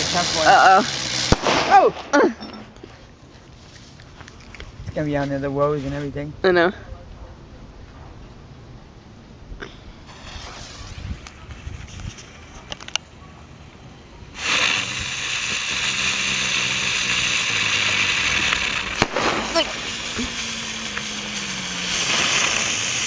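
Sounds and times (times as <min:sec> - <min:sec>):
loud hiss of spraying sparks: 0:00.0 - 0:02.1, 0:10.0 - 0:23.0
firework fizzing and crackling: 0:00.0 - 0:03.1, 0:09.6 - 0:23.0.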